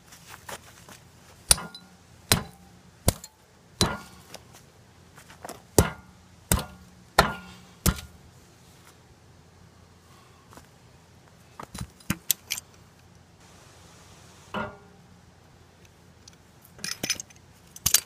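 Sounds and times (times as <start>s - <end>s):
axe pounding the ground: 1.5s - 4.3s, 5.8s - 8.2s
short metallic ring: 1.5s - 4.3s, 14.6s - 15.0s.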